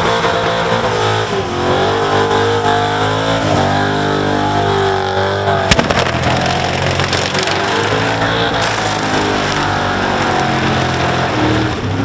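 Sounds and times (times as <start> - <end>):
car engine revving high: 0.0 - 12.0
sharp bang: 5.7 - 6.5.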